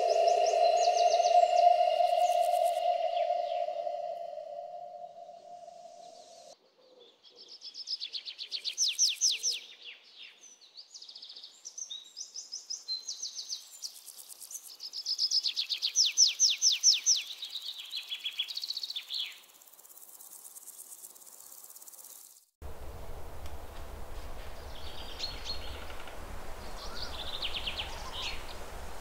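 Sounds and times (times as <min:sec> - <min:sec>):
faint high fast pulsing: 0:00.0 - 0:06.5
songbird singing: 0:00.0 - 0:19.5, 0:24.2 - 0:29.0.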